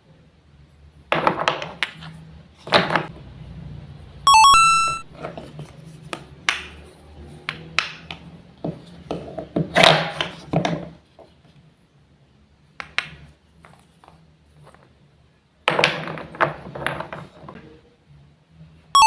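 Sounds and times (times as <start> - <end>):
electronic beeping tune: 4.3 - 5.1
wooden toy clacks and knocks: 15.7 - 17.6.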